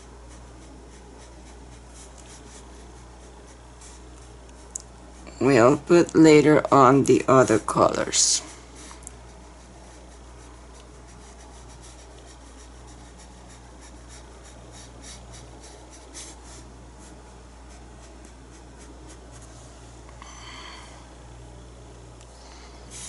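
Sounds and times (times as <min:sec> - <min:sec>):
paintbrush scratching on surface: 0:00.0 - 0:05.4, 0:07.4 - 0:19.5
steady low hum: 0:00.0 - 0:23.0.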